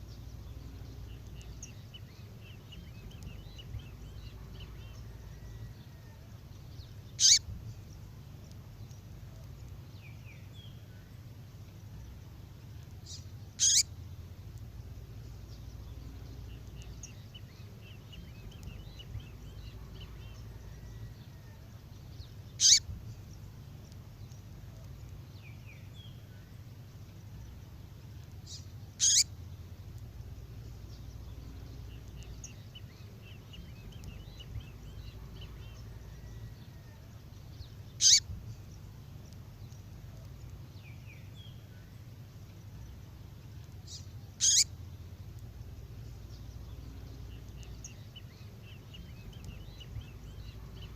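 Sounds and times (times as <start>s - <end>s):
faint rapid bird twittering: 0.0s - 50.9s
low steady hum: 0.0s - 50.9s
downward sweeping bird calls: 7.1s - 7.5s, 13.6s - 13.9s, 22.6s - 23.0s, 28.5s - 29.3s, 37.9s - 38.3s, 43.9s - 44.7s.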